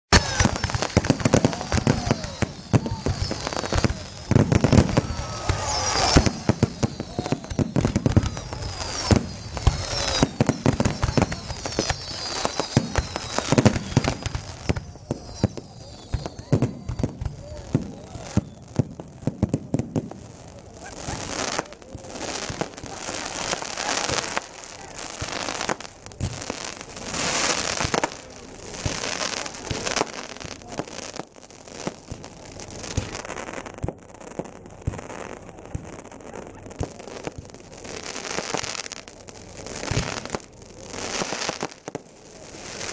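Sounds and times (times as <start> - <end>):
firework shells bursting: 0.1 - 20.1
fireworks crackling: 0.1 - 42.9.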